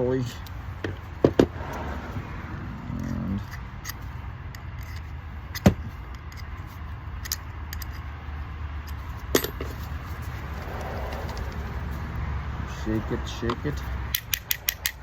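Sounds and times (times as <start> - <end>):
steady low hum: 0.0 - 15.0
hand tool clicking and knocking: 4.8 - 6.5, 7.2 - 8.0, 13.5 - 15.0.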